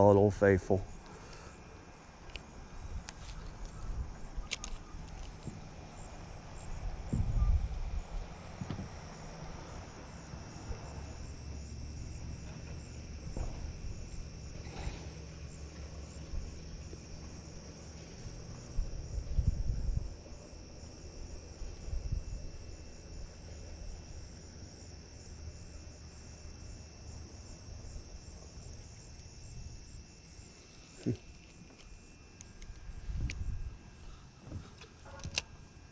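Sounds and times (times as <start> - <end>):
insects chorus: 0.0 - 35.9
wind rumbling on microphone: 2.4 - 15.1, 16.0 - 24.3, 32.4 - 34.7.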